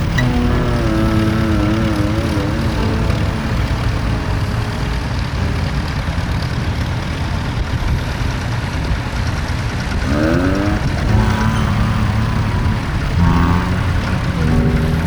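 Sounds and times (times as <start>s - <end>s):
rising pitched sound: 0.0s - 6.9s, 10.1s - 15.0s
tractor engine rumbling: 0.0s - 15.0s.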